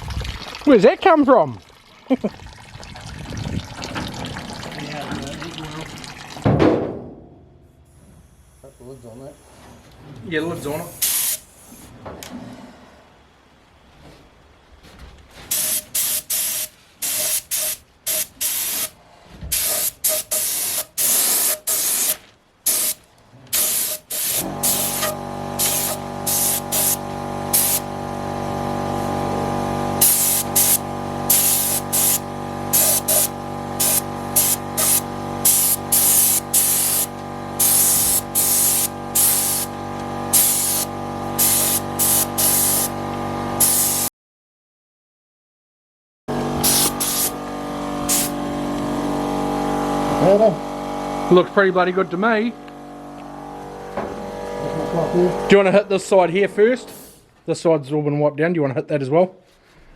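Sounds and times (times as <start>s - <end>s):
spray gun hissing in bursts: 10.8s - 11.8s, 15.5s - 43.0s, 43.6s - 44.1s, 46.6s - 47.4s, 48.0s - 48.4s.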